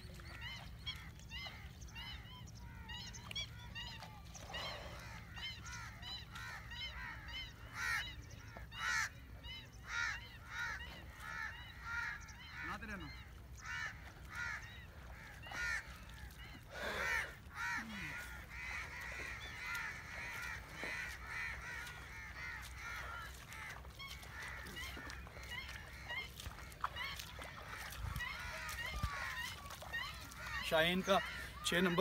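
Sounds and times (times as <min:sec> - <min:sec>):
birds honking: 0:00.1 - 0:32.0.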